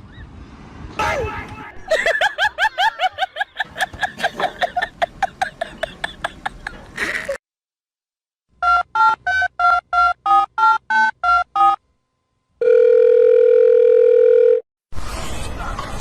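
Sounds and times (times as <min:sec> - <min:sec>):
steady phone tone: 0:12.6 - 0:14.6.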